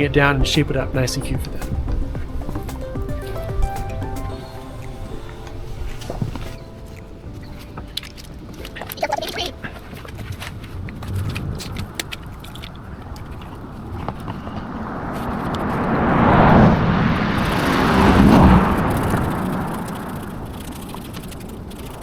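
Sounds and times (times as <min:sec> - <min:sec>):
car driving past: 0:12.9 - 0:20.6.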